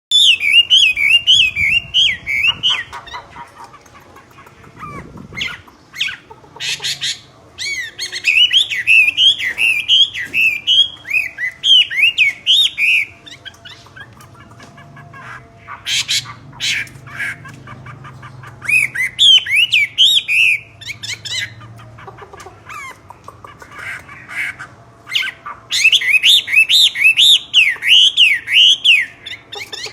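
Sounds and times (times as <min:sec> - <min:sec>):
myna bird whistling: 0:00.1 - 0:03.7, 0:04.7 - 0:29.9
harsh rasping bird calls: 0:00.1 - 0:29.9.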